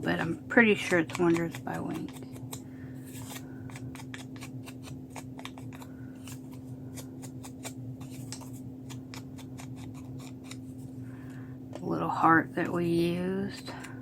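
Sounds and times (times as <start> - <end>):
steady low hum: 0.0 - 14.0
paper clicks and rustles: 0.7 - 10.6.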